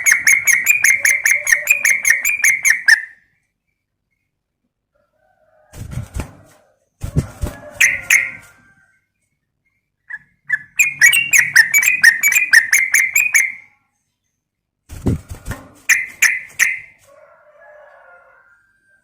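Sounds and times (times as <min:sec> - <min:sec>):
bird chattering call: 0:00.0 - 0:03.2, 0:10.1 - 0:13.6.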